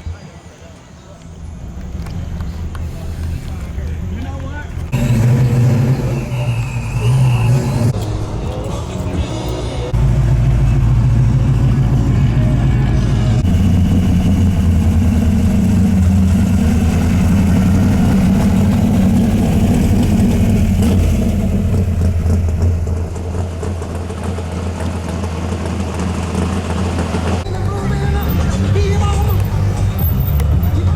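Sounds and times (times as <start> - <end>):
car engine rumbling: 0.7 - 30.9.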